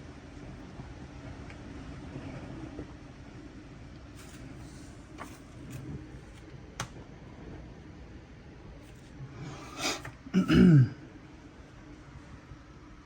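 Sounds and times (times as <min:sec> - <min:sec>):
person clearing throat: 0:10.3 - 0:11.0.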